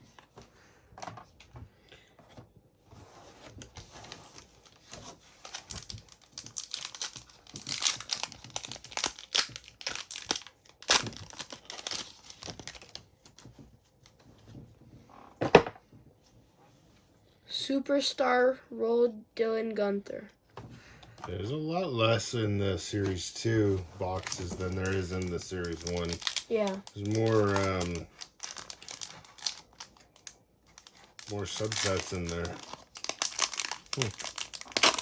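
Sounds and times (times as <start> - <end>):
foil wrapper tearing and crinkling: 3.6 - 13.0, 22.8 - 35.0.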